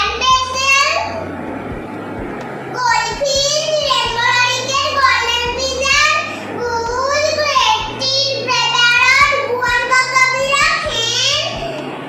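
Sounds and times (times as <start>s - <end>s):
girl chanting in sing-song voice: 2.7s - 12.0s.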